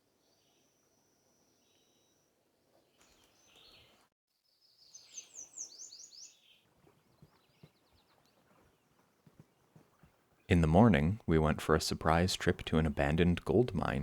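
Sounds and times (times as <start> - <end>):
songbird whistling: 4.9 - 6.6.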